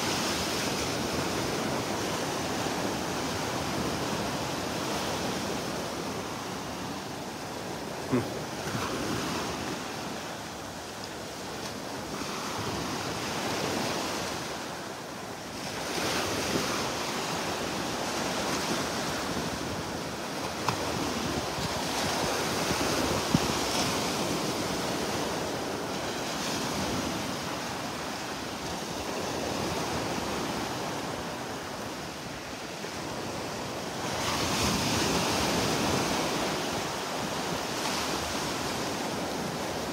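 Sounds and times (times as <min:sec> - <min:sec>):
surf washing onto beach: 0:00.0 - 0:39.9
wind on microphone: 0:15.5 - 0:28.0.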